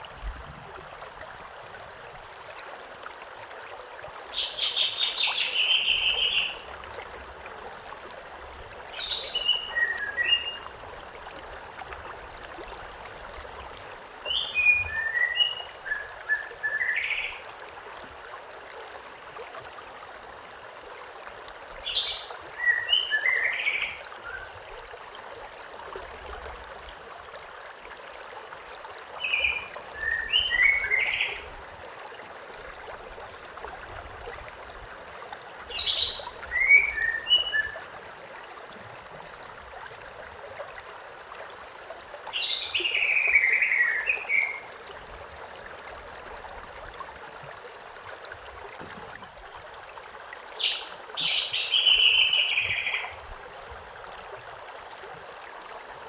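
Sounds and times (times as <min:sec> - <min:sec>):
river flowing: 0:00.0 - 0:56.0
bird chirping: 0:50.6 - 0:53.1.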